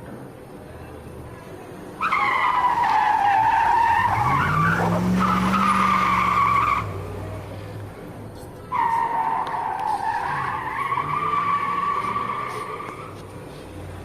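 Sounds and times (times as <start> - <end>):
electronic tyre screech tone: 2.0 - 7.1, 8.6 - 13.3.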